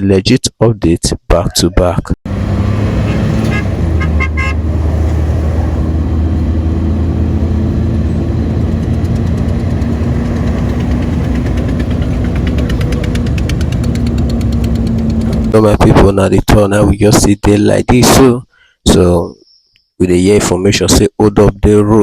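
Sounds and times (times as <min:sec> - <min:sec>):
vehicle engines rumbling: 0:01.7 - 0:17.6
car horn toots: 0:03.0 - 0:04.6
fast regular ticking: 0:08.5 - 0:15.6.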